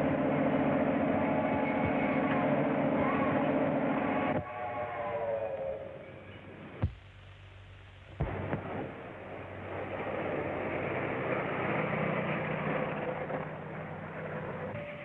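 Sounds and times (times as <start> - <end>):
rushing vehicle rumble: 0.0 - 4.4, 9.4 - 15.0
faint film hiss: 4.5 - 15.0.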